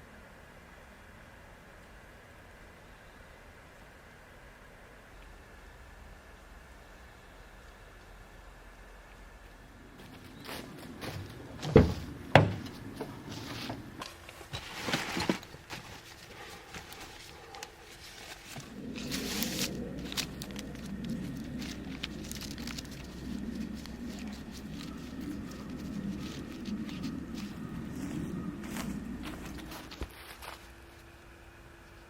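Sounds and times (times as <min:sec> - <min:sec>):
steady rustling: 0:10.0 - 0:31.0
handling noises: 0:10.0 - 0:31.1.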